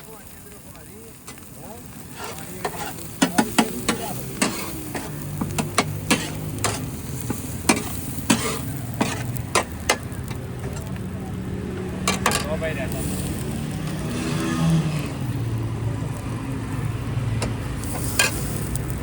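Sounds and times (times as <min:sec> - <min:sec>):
food sizzling in hot oil: 0:00.0 - 0:19.0
metal spatula tapping pan: 0:02.2 - 0:10.8.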